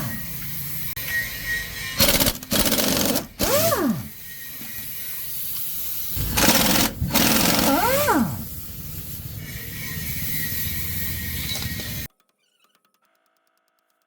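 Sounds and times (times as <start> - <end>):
pneumatic impact wrench hammering: 2.0 - 12.1.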